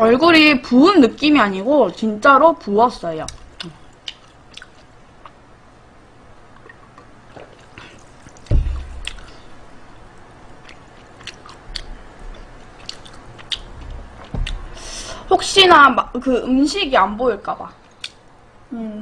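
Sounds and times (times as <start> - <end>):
small mouth clicks: 3.3 - 5.4, 9.0 - 9.4, 10.6 - 13.7
soft chewing: 3.3 - 5.4, 6.5 - 14.8
dull thump: 8.4 - 9.1, 13.8 - 14.8.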